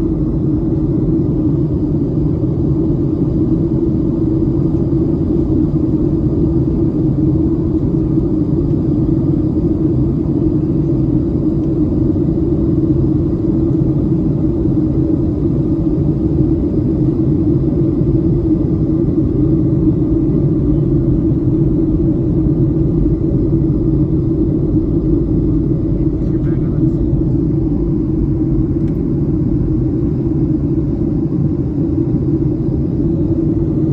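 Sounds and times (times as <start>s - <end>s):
airplane cabin drone: 0.0s - 33.9s
faint high whine: 14.0s - 33.9s.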